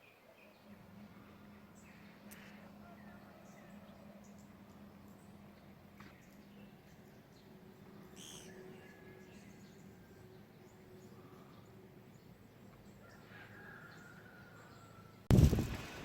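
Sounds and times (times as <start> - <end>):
faint bird calls: 0.0 - 15.2.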